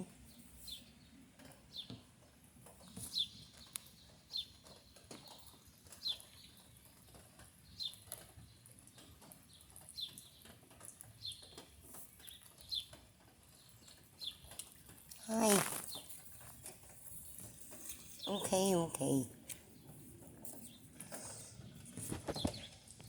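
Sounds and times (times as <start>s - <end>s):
bird chirping: 2.8s - 6.8s.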